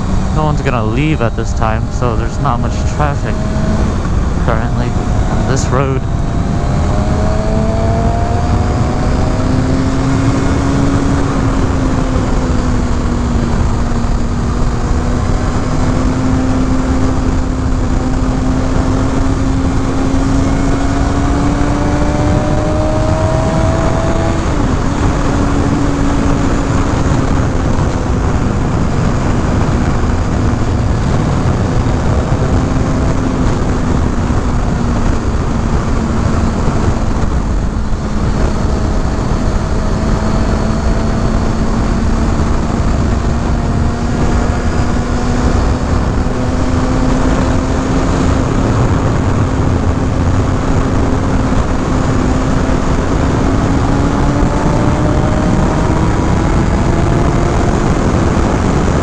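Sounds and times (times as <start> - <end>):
wind noise: 0.0 - 59.0
motorcycle engine cruising: 2.6 - 59.0.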